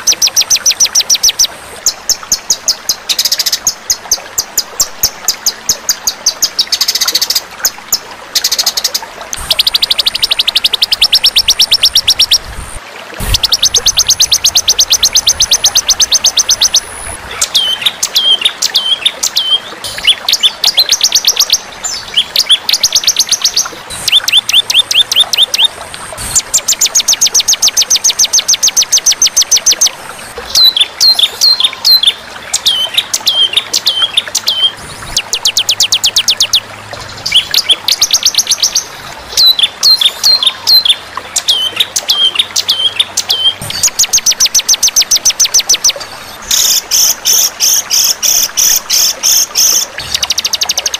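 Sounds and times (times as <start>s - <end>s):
songbird trills and whistles: 30.5s - 36.6s, 37.2s - 47.1s.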